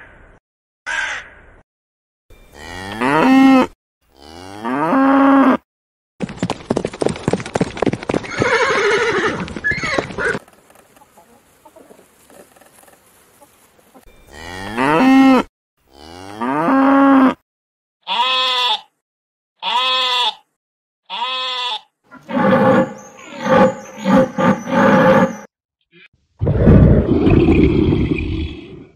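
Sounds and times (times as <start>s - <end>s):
cattle mooing: 2.6s - 5.6s, 14.3s - 17.4s, 22.2s - 25.5s
deer calling: 21.1s - 25.4s
animal call: 22.1s - 26.1s.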